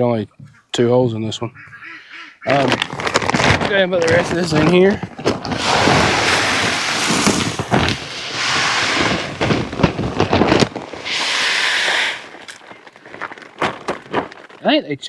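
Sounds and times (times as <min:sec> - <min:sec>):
grain feed pouring into bucket: 0:05.5 - 0:12.6.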